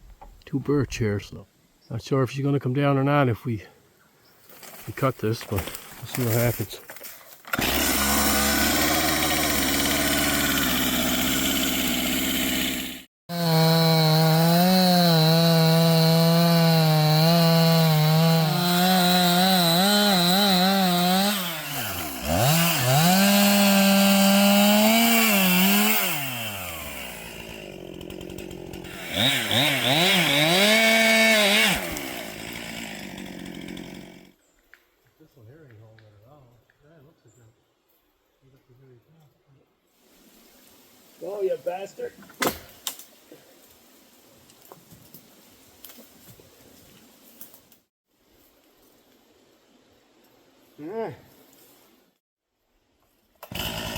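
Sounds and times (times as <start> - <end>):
chainsaw cutting tree: 7.4 - 34.4, 53.4 - 53.9.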